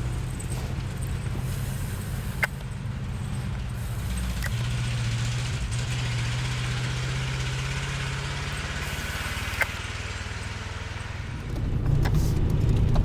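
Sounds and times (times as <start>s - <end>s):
truck engine running: 0.0s - 13.0s
sharp click: 9.0s - 9.8s.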